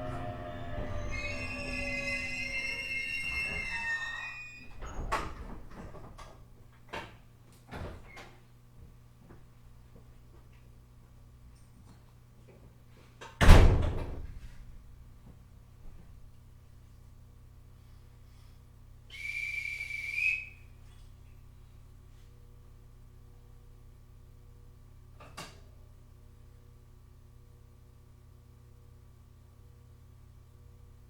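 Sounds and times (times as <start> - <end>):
steady low hum: 0.0 - 5.1
train motors whining: 0.0 - 5.5
train electrical hum: 0.0 - 6.8, 15.1 - 25.1.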